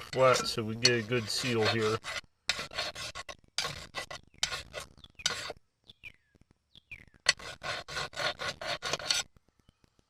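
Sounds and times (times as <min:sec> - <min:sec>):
file rasping on metal: 0:00.0 - 0:05.6, 0:07.3 - 0:09.2.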